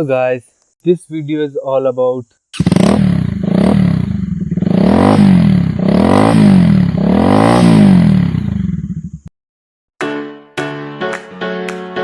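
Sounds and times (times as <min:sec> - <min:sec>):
motorcycle engine revving: 0:02.6 - 0:09.3.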